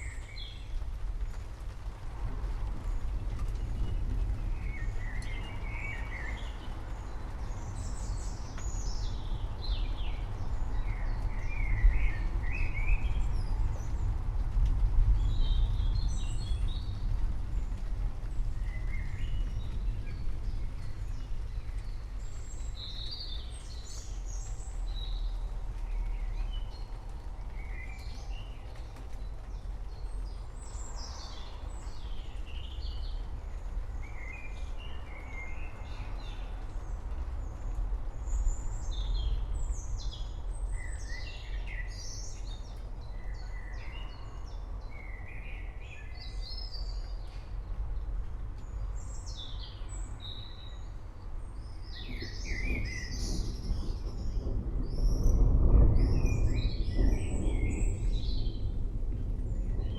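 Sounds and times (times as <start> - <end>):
steady low rumble: 0.0 - 59.9
birds chirping and singing: 51.6 - 54.4.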